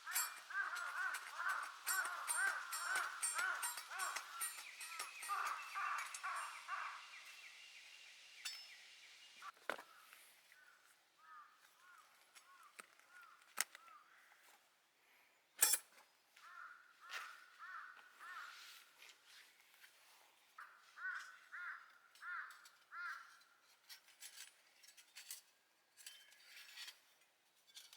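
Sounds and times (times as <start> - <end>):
crows cawing: 0.0 - 7.4, 10.0 - 14.3, 16.4 - 18.8, 20.6 - 23.5.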